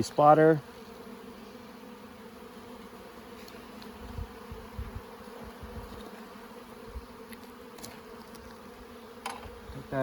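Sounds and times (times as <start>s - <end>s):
honeybees buzzing: 0.0s - 10.0s.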